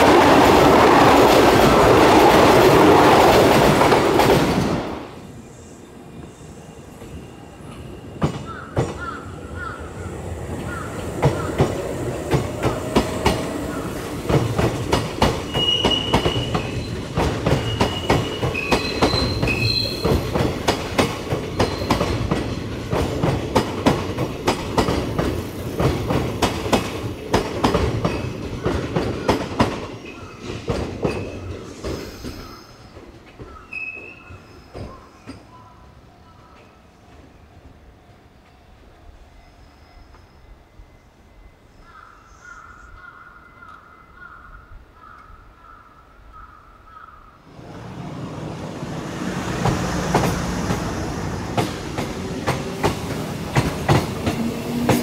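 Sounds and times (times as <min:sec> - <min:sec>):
train wheels clattering over rails: 0:00.0 - 0:05.2, 0:08.0 - 0:34.1, 0:47.5 - 0:55.0
high wheel squeals: 0:15.3 - 0:20.4.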